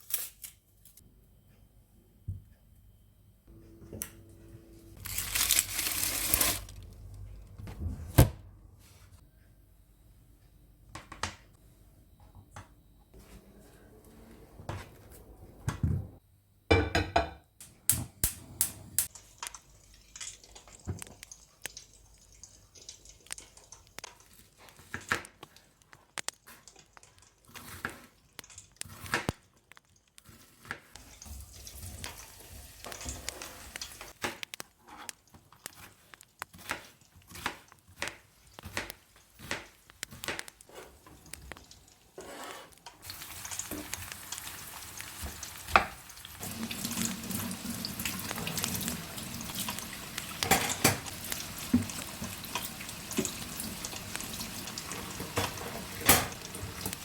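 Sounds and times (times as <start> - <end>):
food sizzling in a pan: 30.4 - 34.2, 40.8 - 57.0
utensil scraping a pan: 42.2 - 42.9.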